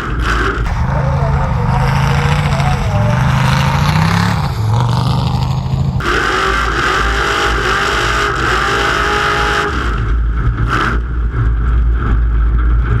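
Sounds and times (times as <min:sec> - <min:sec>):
truck engine running hard: 0:00.0 - 0:13.0
loud rushing noise: 0:00.6 - 0:07.3.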